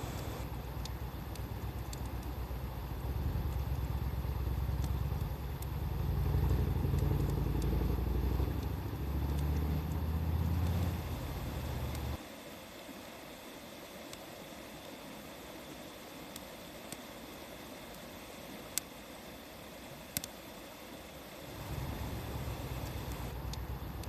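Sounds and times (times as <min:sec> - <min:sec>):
vehicle engine running: 0:00.0 - 0:00.5, 0:02.9 - 0:12.2, 0:21.5 - 0:24.0
campfire crackling: 0:00.0 - 0:12.2, 0:12.8 - 0:24.0.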